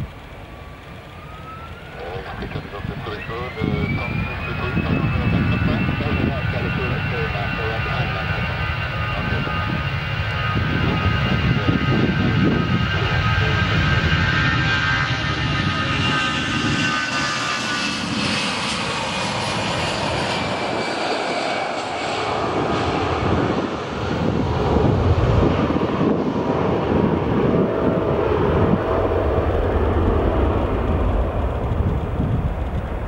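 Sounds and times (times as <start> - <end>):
jet engines whining: 0.0 - 33.0
low rumble: 22.2 - 33.0.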